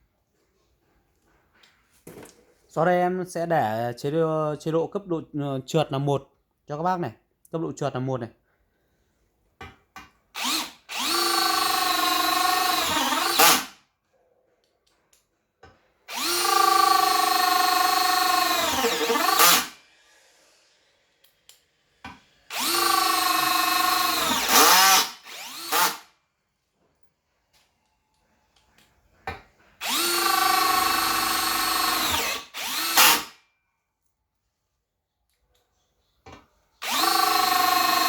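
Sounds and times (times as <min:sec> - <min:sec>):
cordless drill running: 0:10.4 - 0:13.8, 0:16.1 - 0:19.9, 0:22.5 - 0:26.1, 0:29.8 - 0:33.4, 0:36.8 - 0:38.0
drill trigger blips: 0:16.1 - 0:19.7, 0:22.5 - 0:26.0, 0:29.8 - 0:33.3, 0:36.8 - 0:38.0.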